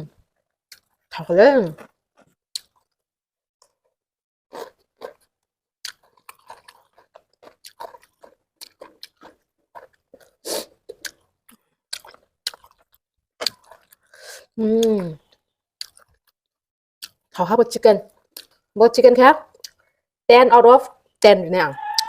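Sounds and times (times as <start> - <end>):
person chewing food: 0.1 - 17.3, 18.1 - 18.7, 19.5 - 20.0.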